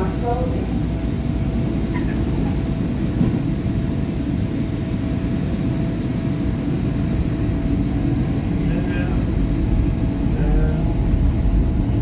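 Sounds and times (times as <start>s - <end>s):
subway wheels rumbling: 0.0s - 12.0s.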